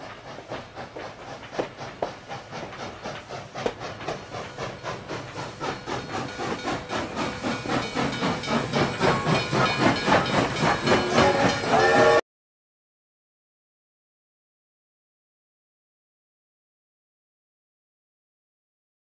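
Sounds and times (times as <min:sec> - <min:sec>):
train wheels clattering: 0:00.0 - 0:12.2.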